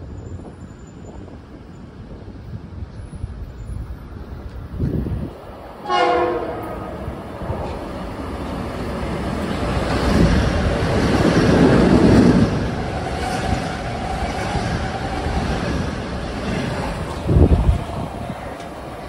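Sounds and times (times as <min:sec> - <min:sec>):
train rushing noise: 0:00.0 - 0:19.0
train horn blast: 0:05.8 - 0:07.3.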